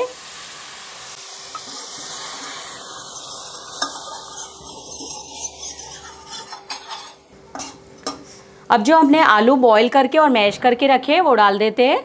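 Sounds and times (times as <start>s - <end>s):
spice paste sizzling in oil: 0.0s - 8.5s.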